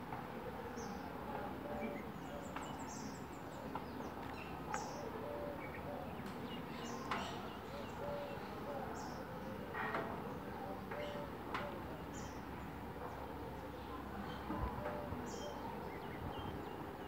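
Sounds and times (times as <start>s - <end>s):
small birds chirping: 0.6s - 17.0s.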